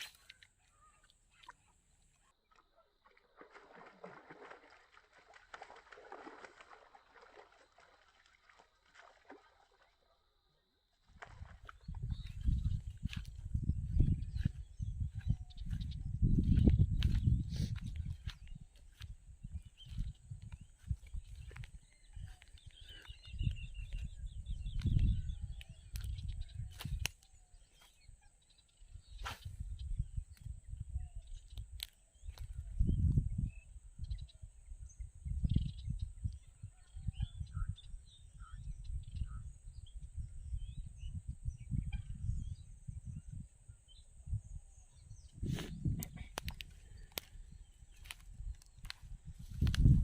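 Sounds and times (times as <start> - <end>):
birds chirping: 11.2 - 50.0.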